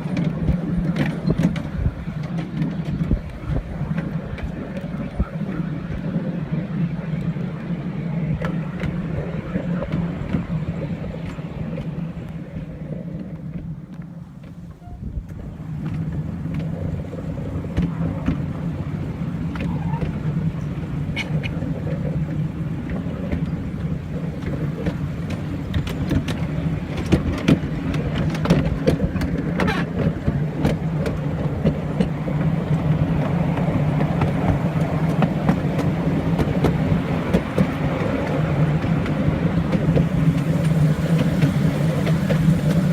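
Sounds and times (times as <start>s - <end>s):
train running low drone: 0.0s - 42.9s.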